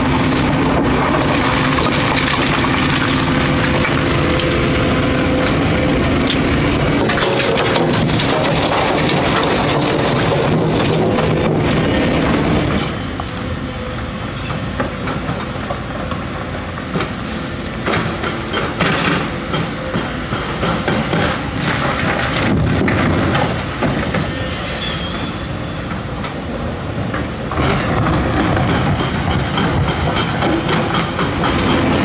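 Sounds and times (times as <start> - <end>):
metallic clanks of tracks and bucket: 0.0 - 13.4, 14.3 - 32.0
diesel engine running: 0.0 - 18.2, 27.5 - 32.0.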